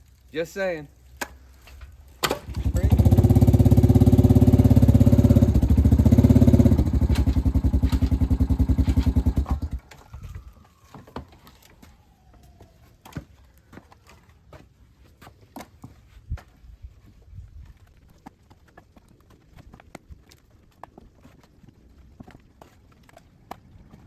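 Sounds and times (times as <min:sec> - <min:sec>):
small engine running: 0:02.3 - 0:10.2.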